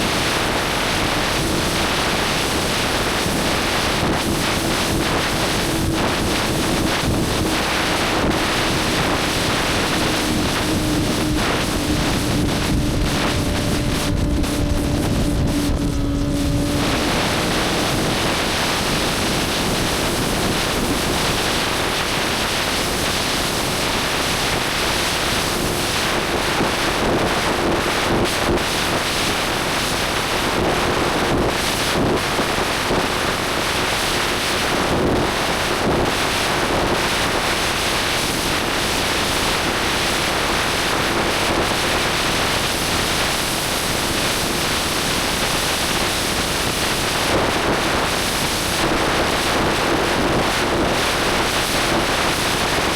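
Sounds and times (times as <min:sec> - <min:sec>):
motorcycle engine hum: 0:00.0 - 0:25.4
wind rushing over microphone: 0:00.0 - 0:52.9.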